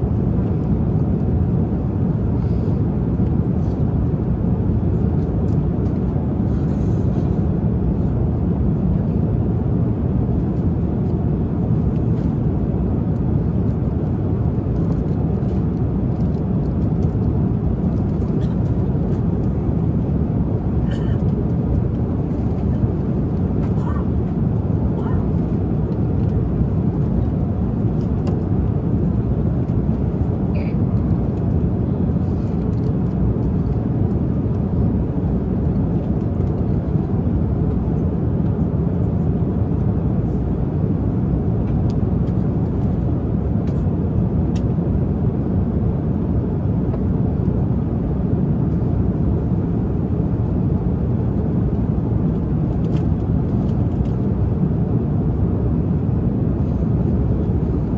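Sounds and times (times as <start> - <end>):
airliner cabin rumble: 0.0 - 57.9.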